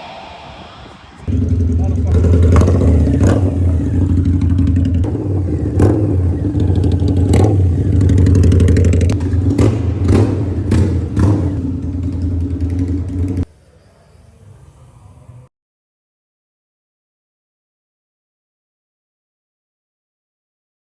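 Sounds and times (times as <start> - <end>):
motorcycle engine running: 1.3 - 13.5.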